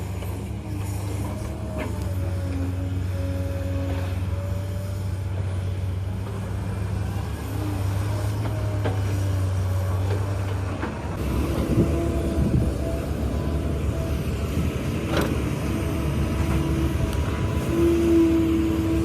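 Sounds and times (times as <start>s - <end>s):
excavator diesel engine running: 0.0s - 19.0s
faint whining tone: 11.2s - 19.0s.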